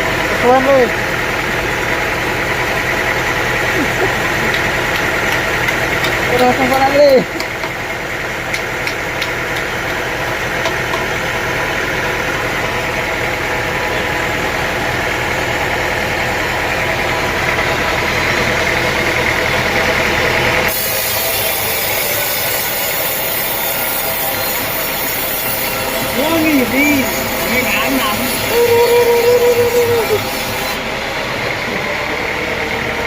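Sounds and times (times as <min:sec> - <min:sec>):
sawmill machinery humming: 0:00.0 - 0:33.0
hissy high machine noise: 0:20.6 - 0:32.8.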